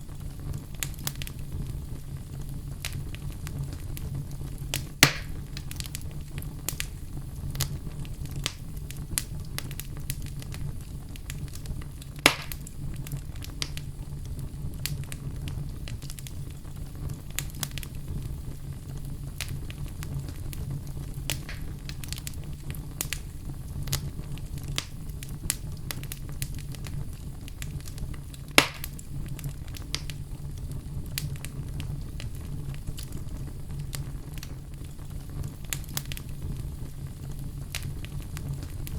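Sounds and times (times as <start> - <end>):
loud fire pops: 0.0 - 38.9
low fire rumble: 0.0 - 38.9
wood fire crackling: 0.0 - 38.9.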